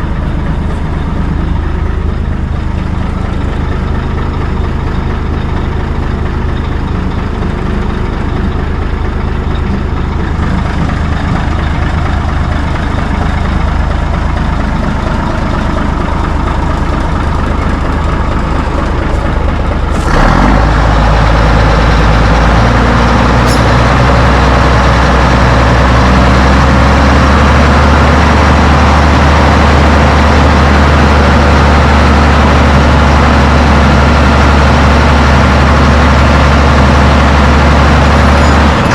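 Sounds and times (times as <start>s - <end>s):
heavy truck engine running: 0.0s - 38.9s.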